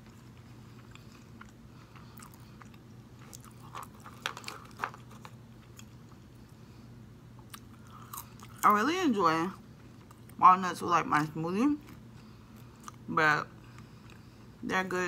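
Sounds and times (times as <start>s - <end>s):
person chewing: 0.0s - 6.6s, 7.3s - 8.7s, 11.8s - 14.5s.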